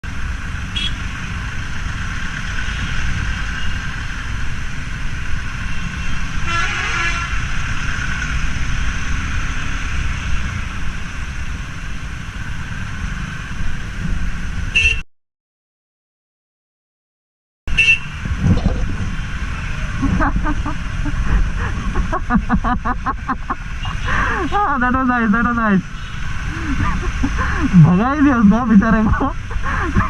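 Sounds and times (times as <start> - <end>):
vehicle horn toot: 0.8 - 1.0, 6.5 - 7.4, 14.7 - 15.0, 17.7 - 18.2
wind rumble on microphone: 18.2 - 23.1.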